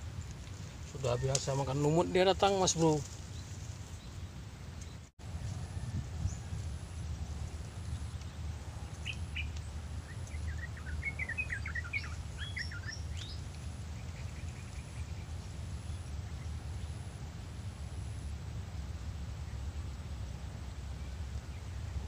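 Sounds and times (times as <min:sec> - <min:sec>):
steady low rumble: 0:00.0 - 0:22.0
birds chirping: 0:00.6 - 0:05.1, 0:07.8 - 0:17.1.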